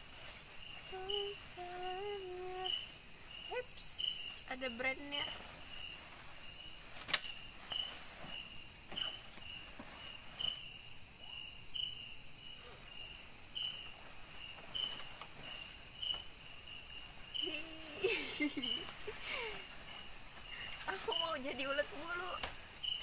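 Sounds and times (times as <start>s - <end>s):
insect chirping: 0.0s - 23.0s
insects buzzing: 0.0s - 23.0s
sharp click: 7.0s - 7.4s.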